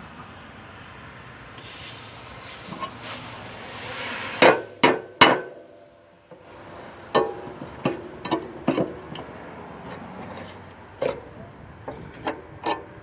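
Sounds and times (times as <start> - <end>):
hammer strikes on metal: 4.4 - 5.7.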